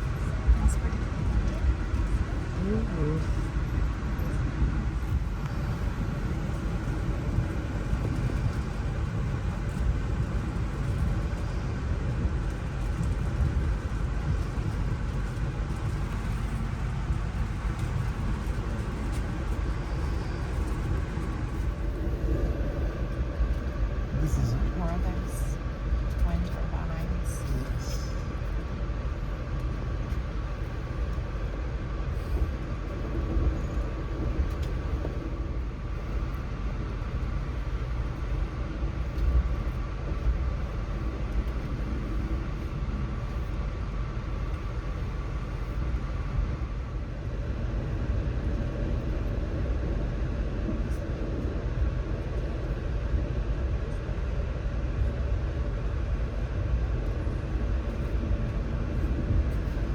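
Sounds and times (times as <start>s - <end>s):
train rumble inside car: 0.0s - 59.9s.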